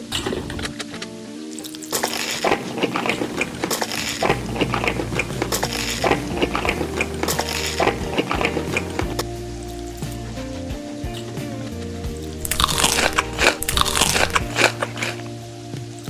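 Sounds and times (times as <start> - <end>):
crisp bites and crunches of food: 1.6 - 10.2, 12.2 - 15.3.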